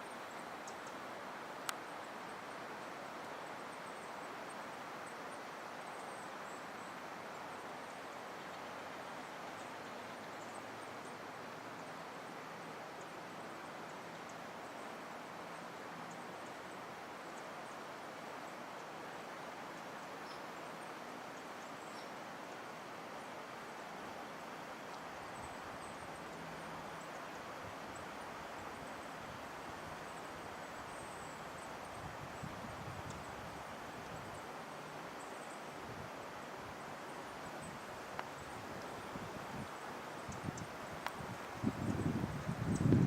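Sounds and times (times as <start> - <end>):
faint bird chirps: 0.0 - 1.2, 19.8 - 22.8
continuous forest hiss: 0.0 - 43.0.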